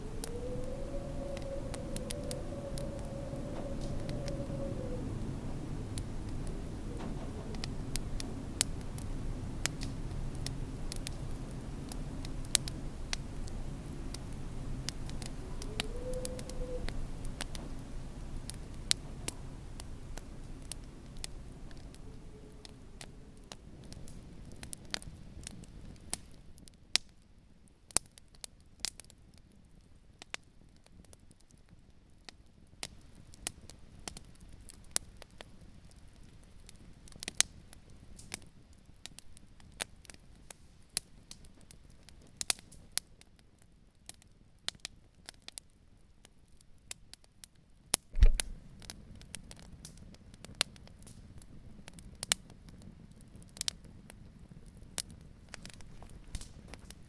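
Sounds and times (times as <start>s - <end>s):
faint low rumble: 0.0s - 25.4s, 48.2s - 48.8s
campfire crackling and popping: 0.0s - 27.2s, 48.2s - 57.0s
loud low thump: 48.2s - 48.6s.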